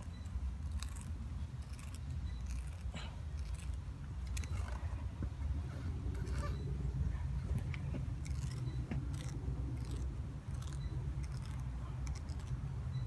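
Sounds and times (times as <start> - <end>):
rasp scraping tire rubber: 0.0 - 12.6
low steady hum: 0.0 - 13.0.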